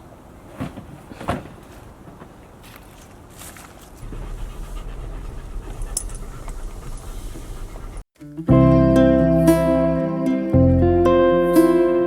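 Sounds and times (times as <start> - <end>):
dog panting: 4.0 - 8.1
low steady rumble: 4.0 - 8.1.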